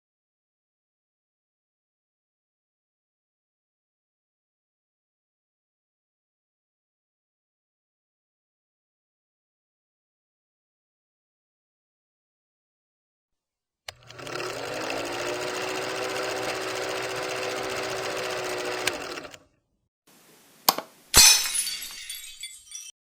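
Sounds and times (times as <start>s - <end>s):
small motor humming: 13.9s - 19.5s.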